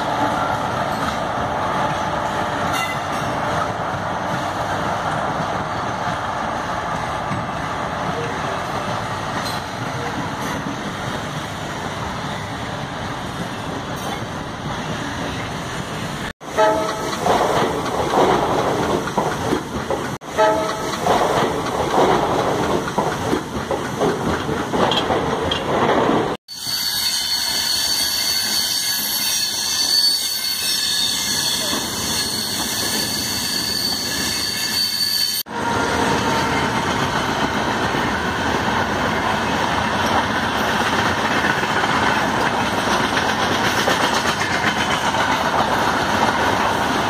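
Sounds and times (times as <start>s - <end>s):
train rumbling on rails: 0.0s - 47.0s
train horn blasts: 16.5s - 17.1s, 20.3s - 20.9s.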